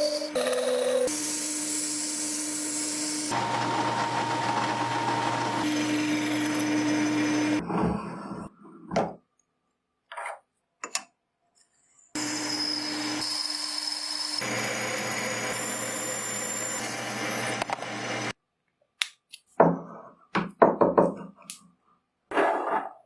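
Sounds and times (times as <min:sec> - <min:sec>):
power tool whining: 0:00.0 - 0:07.6, 0:12.2 - 0:18.3.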